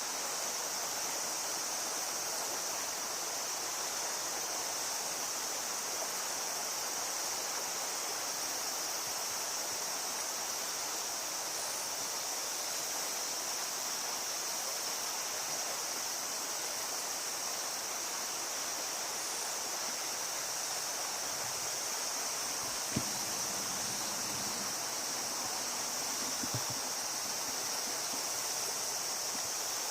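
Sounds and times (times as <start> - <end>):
river water rushing: 16.8 - 29.9.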